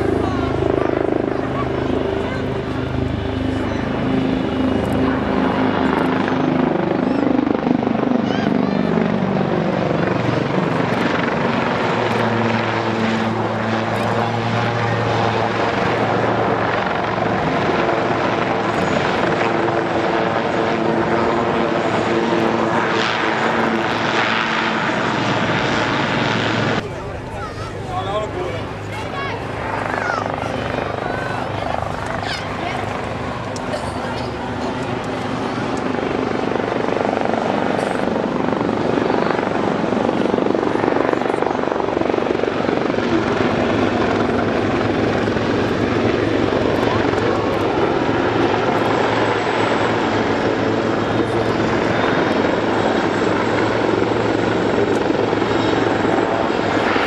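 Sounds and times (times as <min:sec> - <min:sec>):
helicopter flying overhead: 0:00.0 - 0:57.0
turbine whine and rush: 0:08.8 - 0:27.0.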